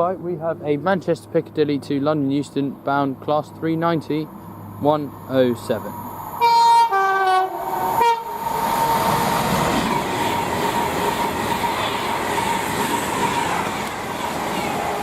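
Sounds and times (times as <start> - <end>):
train passing at speed: 2.8 - 15.0
two-tone train horn: 6.4 - 8.6.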